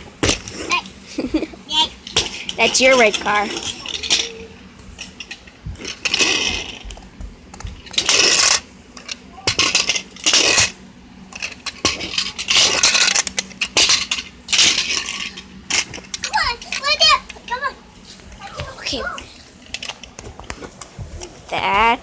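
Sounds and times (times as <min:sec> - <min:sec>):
plastic toys rattling: 0:02.0 - 0:06.9, 0:11.4 - 0:20.2.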